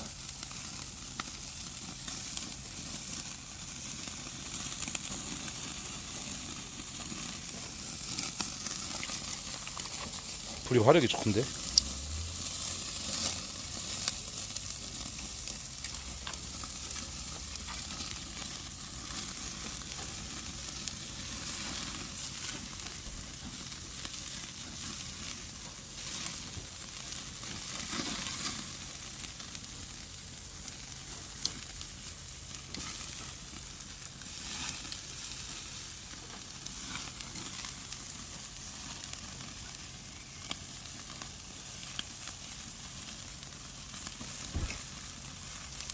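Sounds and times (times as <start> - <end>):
meat sizzling on a grill: 0.0 - 45.9
small pops: 44.5 - 44.9.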